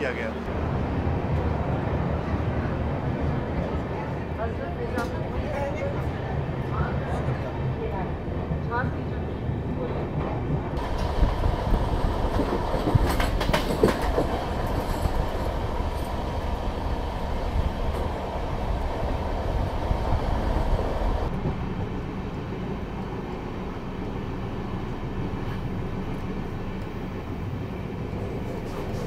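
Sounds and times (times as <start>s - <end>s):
steady hum inside train coach: 0.0s - 29.0s
train wheels rumbling on rail: 0.0s - 29.0s.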